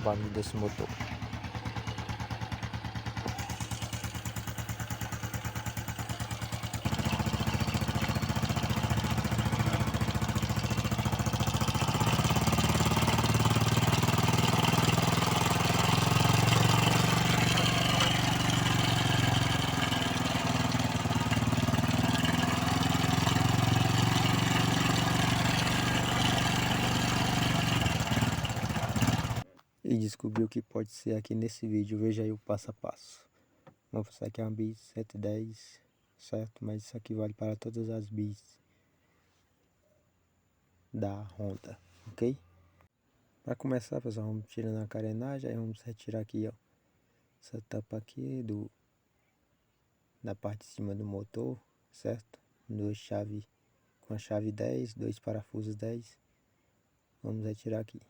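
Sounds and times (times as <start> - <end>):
motorcycle engine ticking: 0.0 - 29.4.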